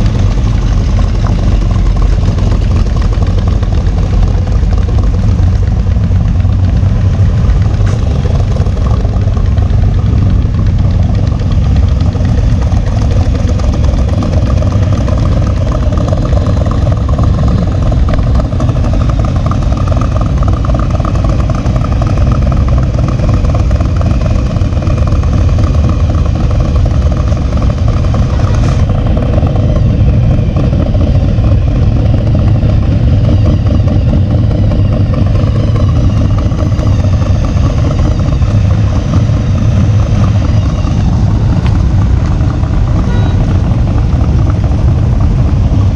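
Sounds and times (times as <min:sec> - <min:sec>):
vehicle engine droning: 0:00.0 - 0:45.9.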